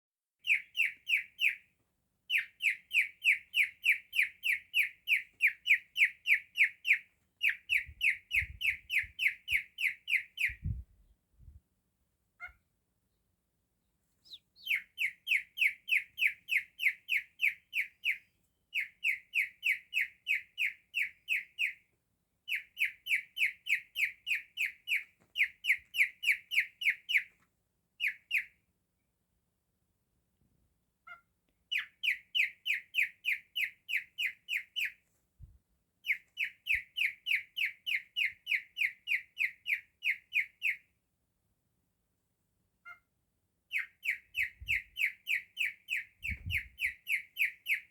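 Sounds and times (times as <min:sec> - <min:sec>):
cockatiel whistling high chirps: 0:14.2 - 0:21.8.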